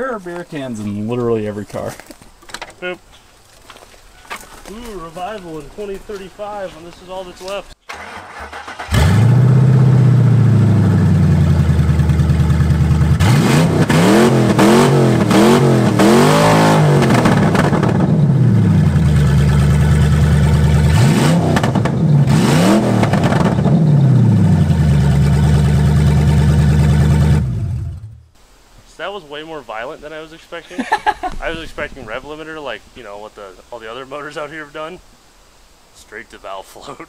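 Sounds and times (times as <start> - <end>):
car engine starting: 7.8 - 28.3
car engine idling and revving: 8.4 - 28.3.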